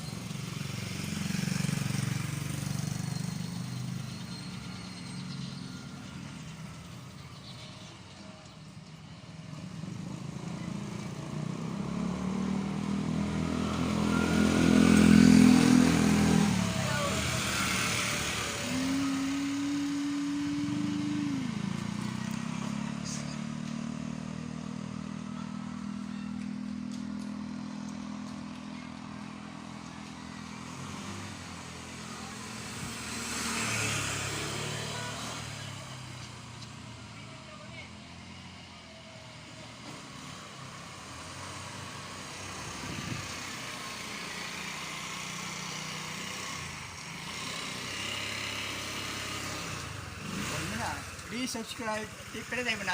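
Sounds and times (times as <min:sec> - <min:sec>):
road noise: 0:00.0 - 0:52.9
motorcycle engine running: 0:09.6 - 0:38.1
wind noise: 0:42.7 - 0:43.4.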